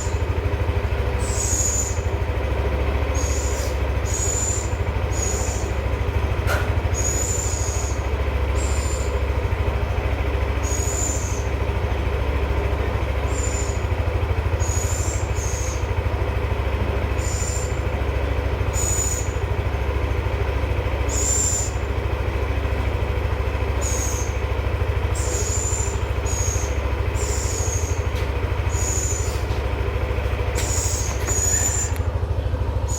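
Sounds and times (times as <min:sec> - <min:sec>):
steady low hum: 0:00.0 - 0:32.9
owl screeching calls: 0:01.2 - 0:02.1, 0:03.1 - 0:05.8, 0:07.0 - 0:09.2, 0:10.6 - 0:11.5, 0:13.2 - 0:13.9, 0:14.5 - 0:15.8, 0:17.2 - 0:17.7, 0:18.7 - 0:19.4, 0:21.1 - 0:21.8, 0:23.8 - 0:24.3, 0:25.1 - 0:28.0, 0:28.6 - 0:29.5, 0:30.6 - 0:32.0.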